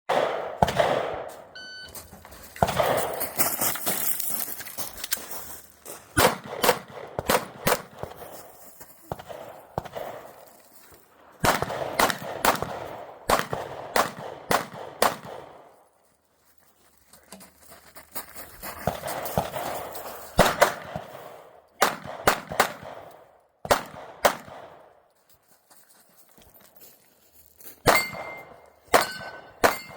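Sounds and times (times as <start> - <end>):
rapid gunshots: 0.1 - 1.3, 2.6 - 3.2, 6.2 - 8.1, 11.4 - 15.6, 21.8 - 23.1
shot timer beep: 1.5 - 2.0.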